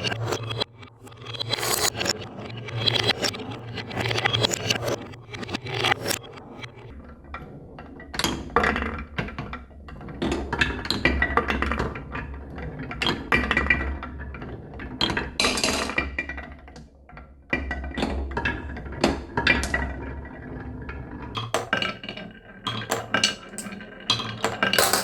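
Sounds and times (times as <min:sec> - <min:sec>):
marbles clattering down a track: 0:21.4 - 0:25.0.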